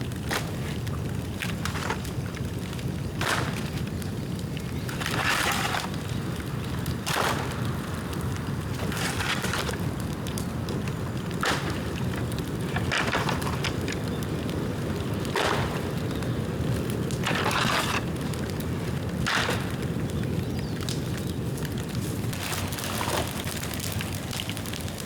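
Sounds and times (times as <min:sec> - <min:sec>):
bonfire flame roar: 0:00.0 - 0:25.0
fire crackling: 0:00.0 - 0:25.0.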